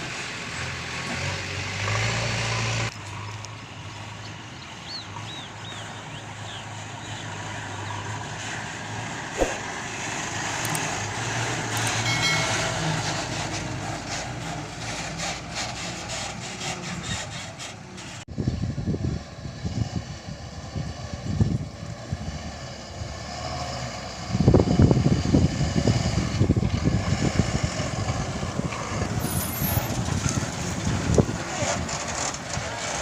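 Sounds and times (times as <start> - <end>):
sharp knock: 9.4 - 9.6.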